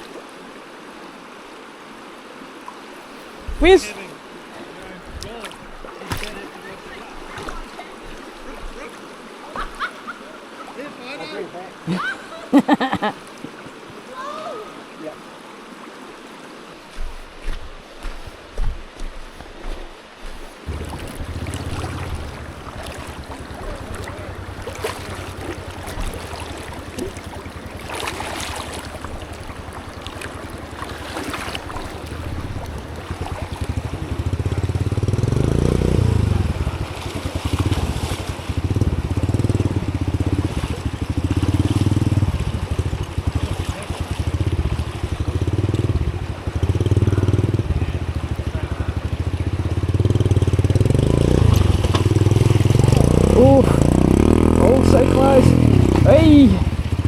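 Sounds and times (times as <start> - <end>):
motorbike engine revving: 20.7 - 30.8, 32.2 - 43.4, 44.2 - 57.0.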